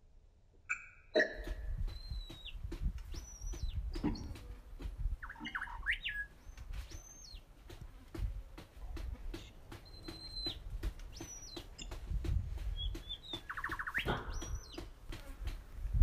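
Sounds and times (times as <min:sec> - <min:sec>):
birds whistling: 0:00.7 - 0:04.4, 0:05.2 - 0:07.5, 0:09.7 - 0:12.0, 0:12.7 - 0:14.9.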